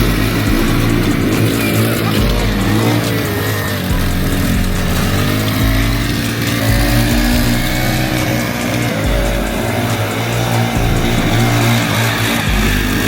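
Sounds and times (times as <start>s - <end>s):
music playing: 0.0s - 13.0s
small engine revving: 0.0s - 13.0s.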